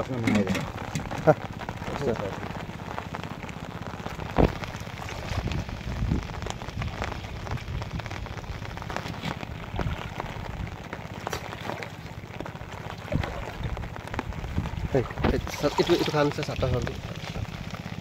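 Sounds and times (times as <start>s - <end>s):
heavy rain on floodwater: 0.0s - 18.0s
water splashes and taps: 0.2s - 1.8s, 8.8s - 17.8s.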